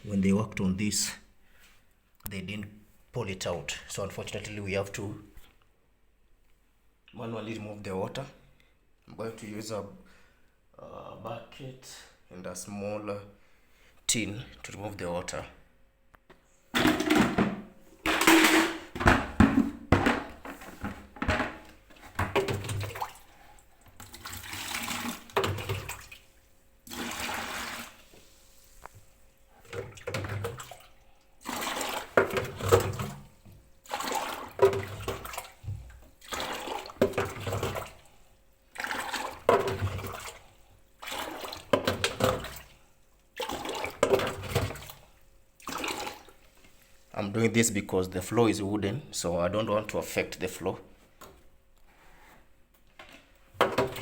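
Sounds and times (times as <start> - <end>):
water splashing into bucket: 16.8 - 28.4, 29.6 - 46.6, 53.6 - 54.0.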